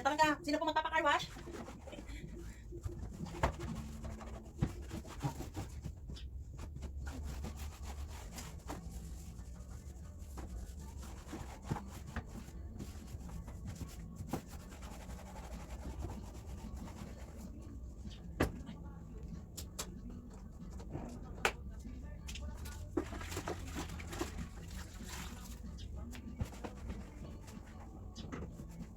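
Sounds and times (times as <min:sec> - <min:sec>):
hand scrubbing car surface: 0:07.1 - 0:17.5.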